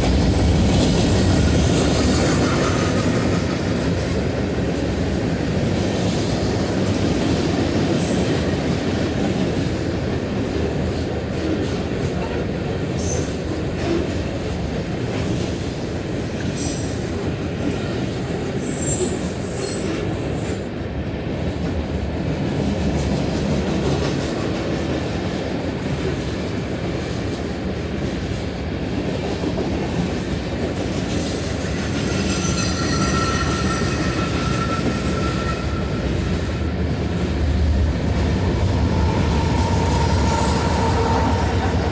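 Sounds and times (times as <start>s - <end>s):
freight train wheels rumbling on rail: 0.0s - 41.9s
high wheel squeals: 31.3s - 36.8s, 38.2s - 41.9s
ringing squeal tones: 31.8s - 36.8s, 38.4s - 41.9s.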